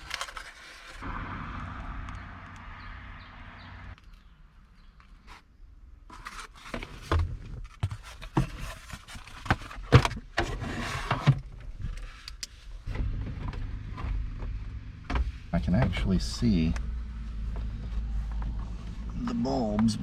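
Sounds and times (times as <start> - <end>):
plastic trim scraping: 0.0 - 1.0.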